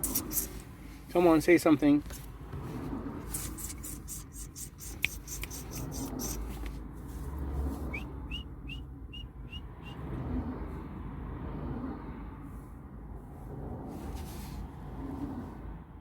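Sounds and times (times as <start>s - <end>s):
sharp clicks: 3.3s - 6.4s.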